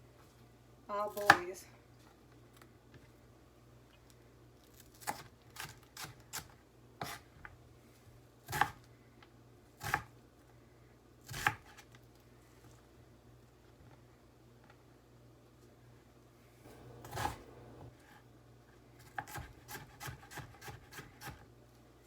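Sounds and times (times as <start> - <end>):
knife chopping on cutting board: 7.0 - 7.2, 16.7 - 17.9, 19.0 - 21.4.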